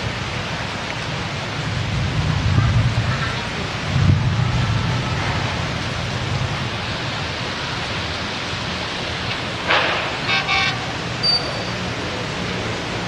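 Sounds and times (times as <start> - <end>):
heavy rain falling: 0.0 - 13.0
horn toots: 9.9 - 11.8.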